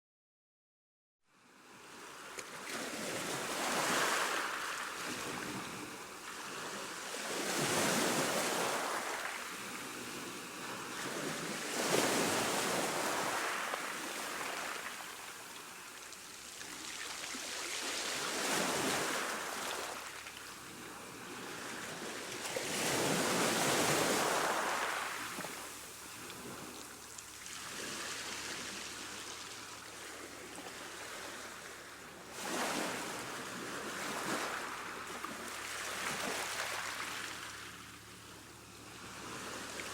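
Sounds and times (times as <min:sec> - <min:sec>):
ocean waves breaking: 0:02.6 - 0:15.8, 0:16.6 - 0:38.0.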